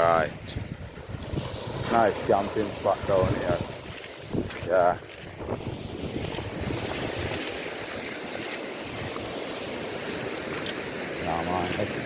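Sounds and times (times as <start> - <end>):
sea surf: 0.0 - 12.0
wind rumbling on microphone: 0.0 - 12.0.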